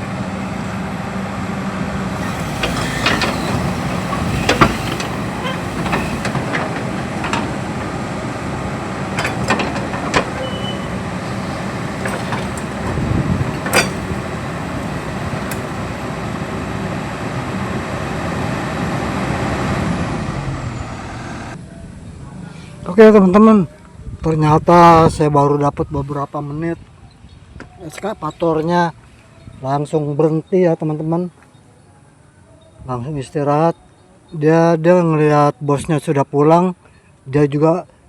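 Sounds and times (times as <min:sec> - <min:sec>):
excavator diesel engine running: 0:00.0 - 0:21.6
sharp knocks and clanks: 0:02.2 - 0:18.9.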